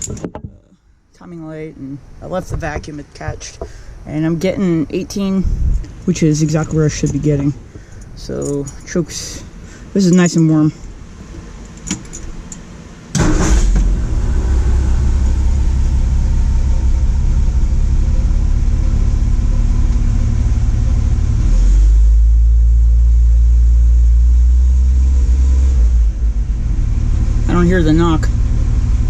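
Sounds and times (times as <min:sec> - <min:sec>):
car engine starting and running: 0:10.8 - 0:29.0.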